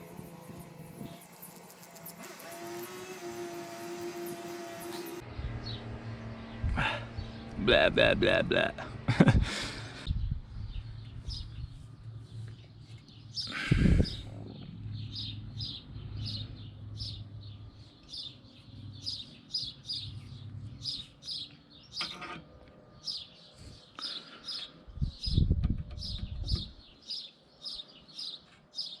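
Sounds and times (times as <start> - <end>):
small bird chirping: 10.2 - 22.2.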